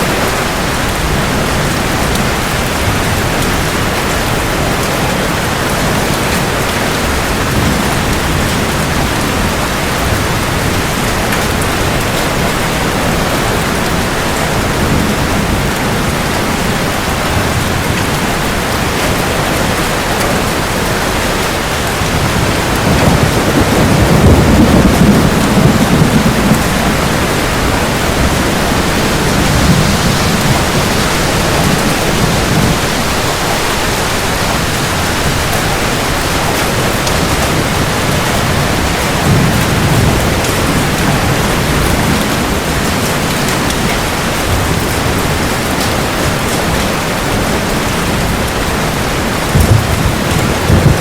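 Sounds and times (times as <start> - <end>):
steady rain: 0.0 - 51.0
low roll of thunder: 21.8 - 46.6, 48.1 - 51.0.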